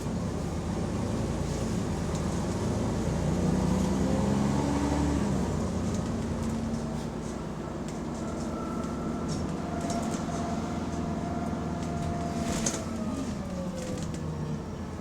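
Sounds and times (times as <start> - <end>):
bus engine and drivetrain whine: 0.0 - 15.0.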